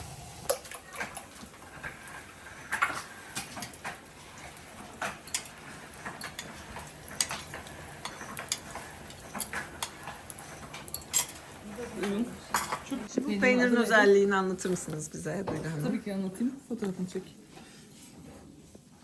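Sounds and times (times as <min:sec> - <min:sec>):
dishes and cutlery clinking: 0:00.4 - 0:13.1.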